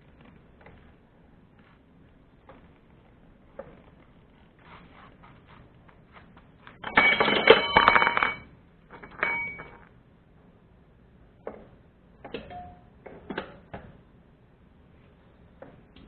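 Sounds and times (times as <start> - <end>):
metallic ringing clatter: 6.8 - 9.9.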